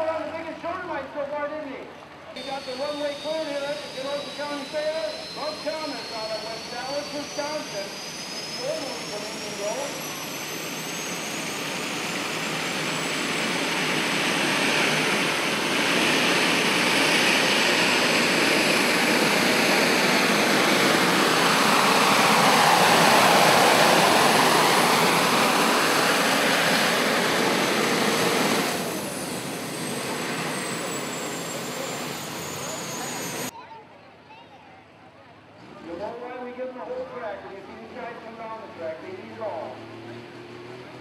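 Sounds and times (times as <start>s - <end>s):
loud engine at full power: 2.4s - 33.5s, 37.7s - 41.0s.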